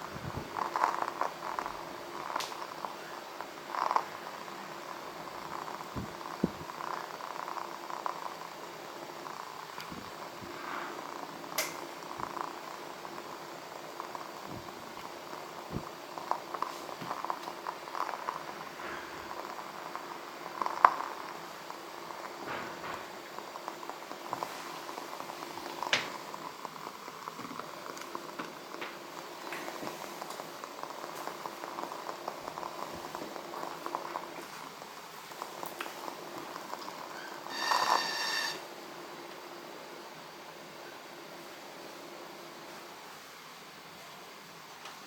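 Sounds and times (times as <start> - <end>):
candle wick crackling: 0.0 - 38.7
wick whistling squeal: 37.1 - 38.7.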